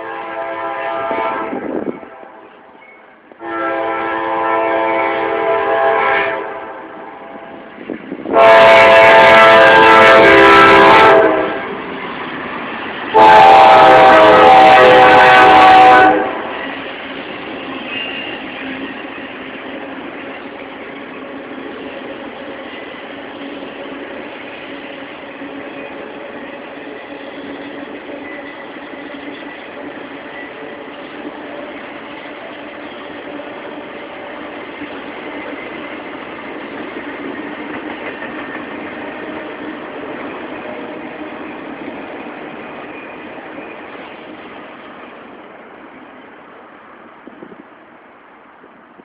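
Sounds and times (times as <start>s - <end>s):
locomotive air horn blasts: 0.0s - 2.5s, 3.4s - 7.6s, 8.3s - 11.8s, 13.1s - 16.5s
train rolling rumble: 0.0s - 49.0s.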